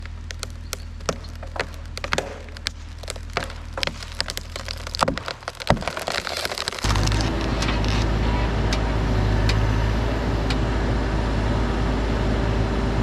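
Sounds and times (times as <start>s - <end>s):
wood cracking and splintering: 0.0s - 8.8s
low engine drone: 6.8s - 13.0s.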